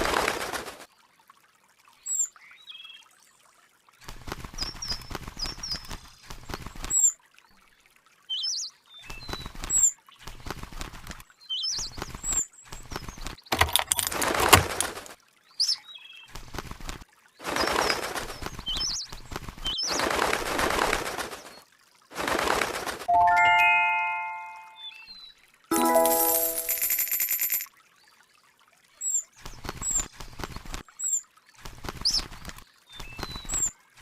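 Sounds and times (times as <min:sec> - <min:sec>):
rustling flutter: 0:13.7 - 0:15.2, 0:16.4 - 0:18.7, 0:19.3 - 0:23.1.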